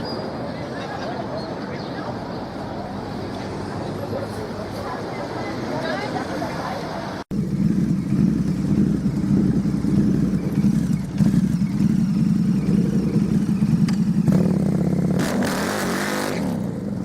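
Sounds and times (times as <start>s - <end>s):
motorcycle engine running: 7.3s - 17.0s.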